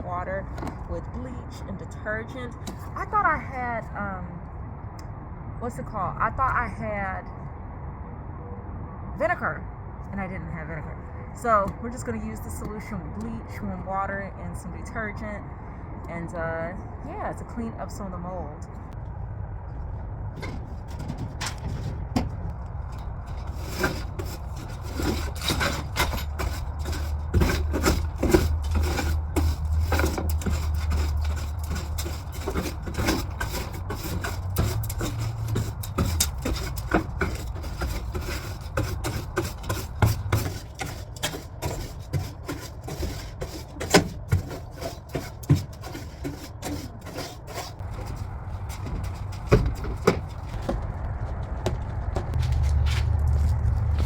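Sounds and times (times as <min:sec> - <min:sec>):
scrubbing on wood: 0:22.8 - 0:54.0.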